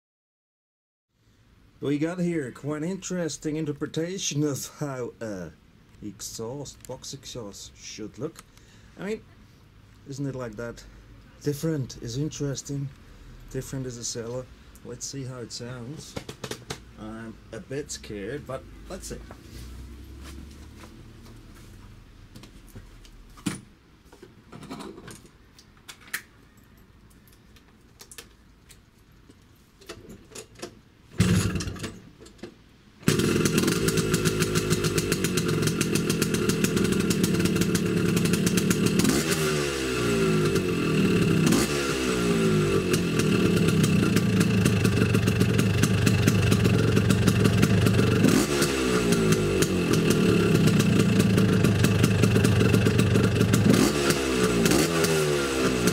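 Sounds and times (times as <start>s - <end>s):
scooter engine revving: 31.2s - 31.8s, 33.0s - 55.9s.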